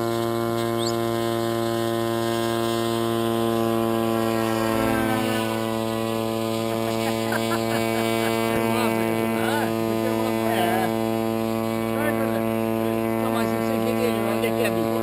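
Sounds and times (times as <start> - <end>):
electrical hum: 0.0 - 15.0
faint wavering pitched sounds: 3.4 - 7.3.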